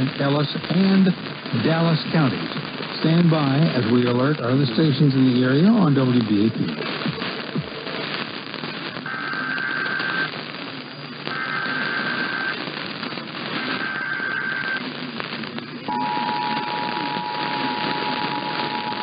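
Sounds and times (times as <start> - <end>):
radio static hiss: 0.0 - 19.0
warbling data tones: 11.3 - 12.8, 13.5 - 14.8, 15.8 - 19.0
two-tone attention signal: 15.9 - 19.0.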